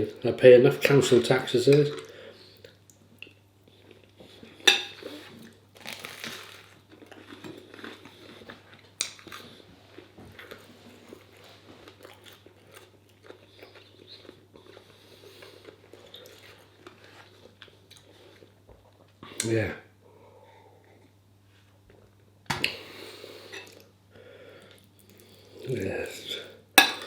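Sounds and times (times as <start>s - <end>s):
low steady hum: 0.0s - 27.0s
person crunching and chewing: 2.7s - 18.6s.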